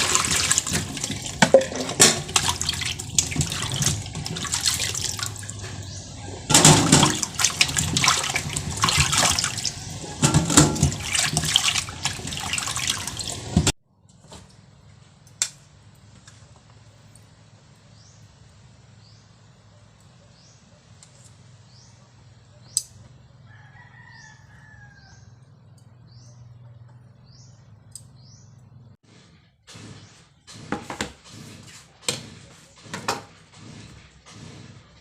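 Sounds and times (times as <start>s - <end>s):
tap water splashing into sink: 0.0s - 5.5s, 6.5s - 13.7s.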